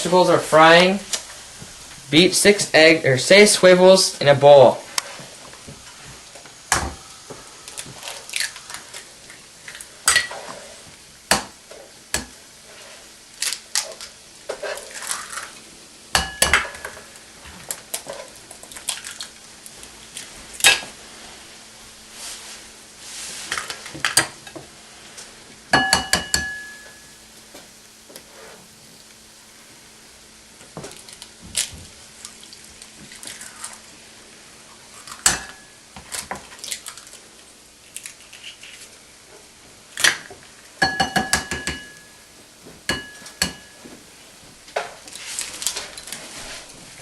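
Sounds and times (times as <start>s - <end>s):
vegetables sizzling faintly: 0.0s - 25.7s
dishes and utensils clinking: 25.8s - 27.1s, 40.8s - 42.1s, 42.9s - 43.9s.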